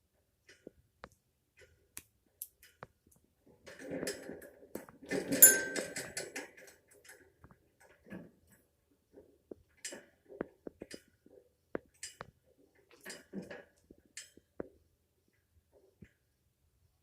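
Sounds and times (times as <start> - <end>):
sharp ringing sound: 5.4 - 6.0.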